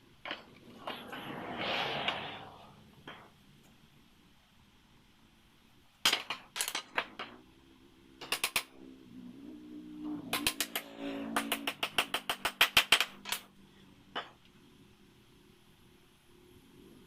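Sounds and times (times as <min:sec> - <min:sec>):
faint hum: 0:00.0 - 0:06.0
nail gun shots into wood: 0:11.4 - 0:13.4.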